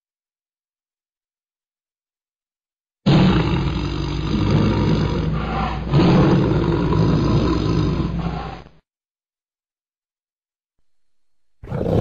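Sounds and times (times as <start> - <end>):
tiger roaring: 3.1 - 8.8, 11.6 - 12.0.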